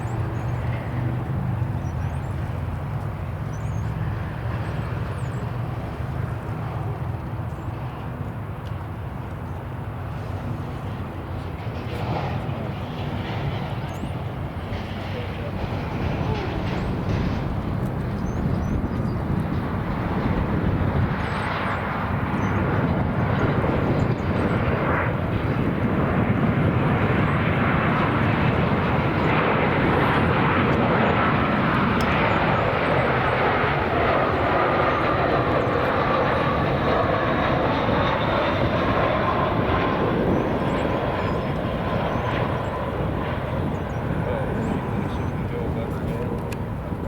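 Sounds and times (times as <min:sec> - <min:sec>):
jet engines roaring: 0:00.0 - 0:47.0.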